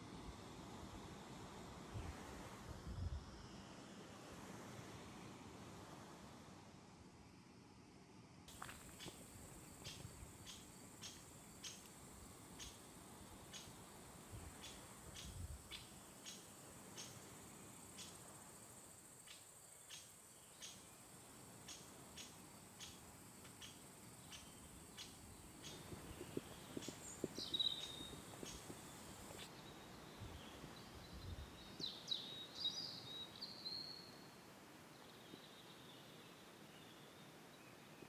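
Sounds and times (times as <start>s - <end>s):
small birds chirping: 8.5s - 11.9s, 12.5s - 13.8s, 14.4s - 17.3s, 19.2s - 21.0s, 21.6s - 34.2s.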